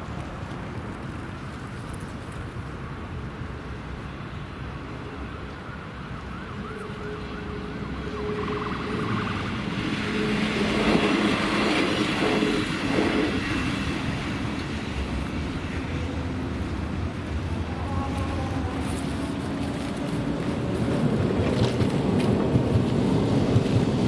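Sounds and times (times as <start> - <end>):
siren rising and falling: 5.3 - 11.1
vehicle passing by: 6.3 - 24.0.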